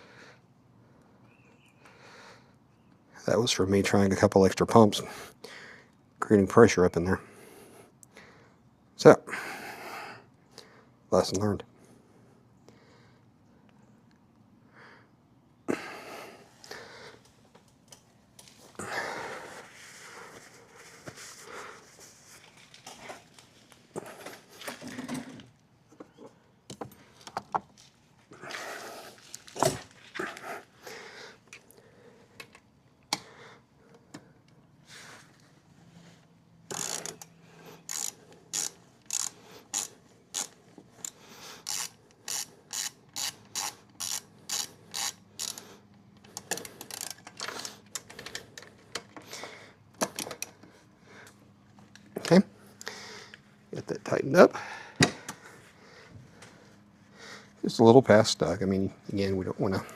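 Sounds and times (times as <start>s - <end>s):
ratchet wrench clicking: 36.7s - 48.1s.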